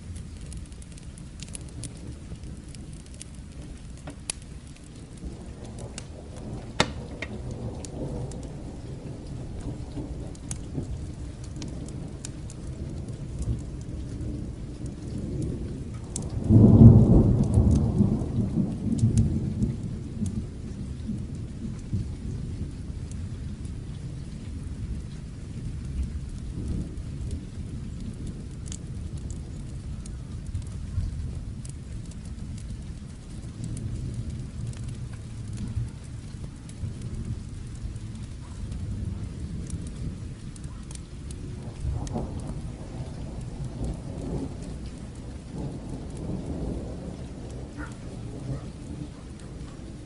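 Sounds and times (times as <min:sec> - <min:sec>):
rolling thunder: 0:00.0 - 0:50.0
steady rain: 0:00.0 - 0:50.0
sharp pops: 0:06.7 - 0:07.3.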